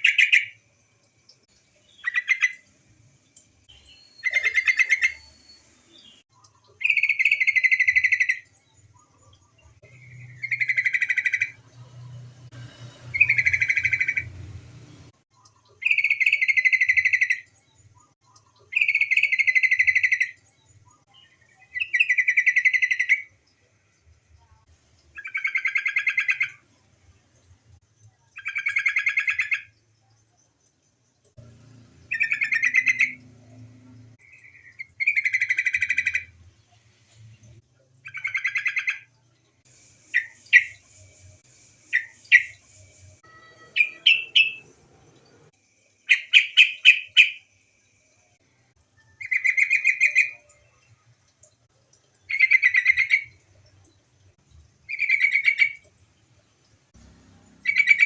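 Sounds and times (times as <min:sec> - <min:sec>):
bird chattering calls: 0:43.7 - 0:44.6, 0:46.1 - 0:47.4.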